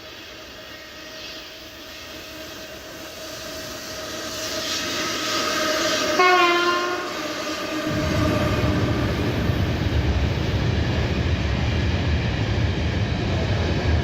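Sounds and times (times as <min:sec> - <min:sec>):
electric locomotive humming: 0:00.0 - 0:14.0
locomotive horn blast: 0:05.6 - 0:09.6.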